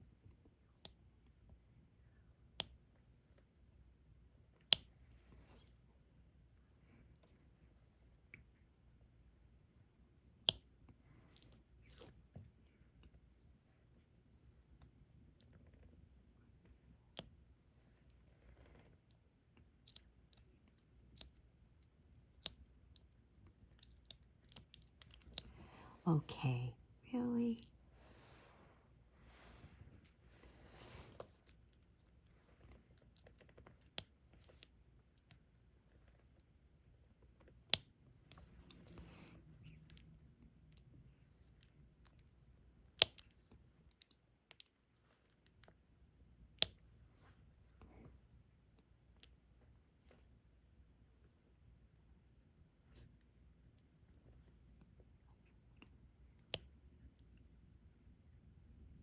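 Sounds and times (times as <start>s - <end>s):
faint clicks and taps of drill pen: 2.4s - 2.8s, 4.6s - 5.8s, 10.3s - 13.2s, 19.6s - 25.7s, 37.2s - 39.1s, 42.9s - 45.8s, 46.4s - 46.8s, 55.8s - 57.4s.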